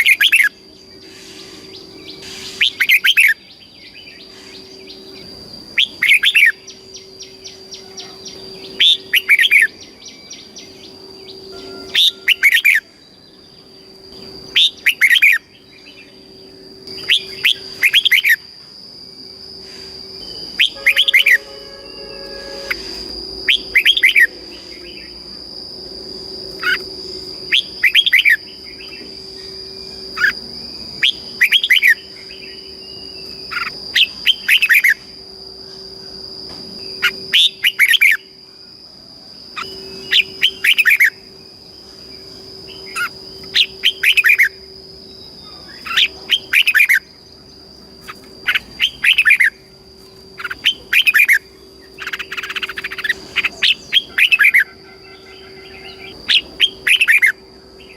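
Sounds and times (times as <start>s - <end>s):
steady high-pitched whine: 0.0s - 57.9s
bird warbling: 5.8s - 13.0s, 16.9s - 18.4s, 19.7s - 25.2s, 26.6s - 30.4s, 48.0s - 49.6s, 50.4s - 57.4s.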